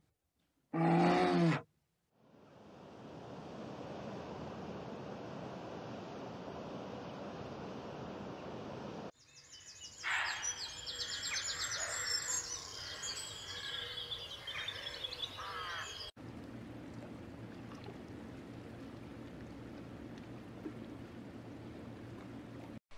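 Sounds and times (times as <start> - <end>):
songbirds chirping and trilling: 9.2 - 16.1.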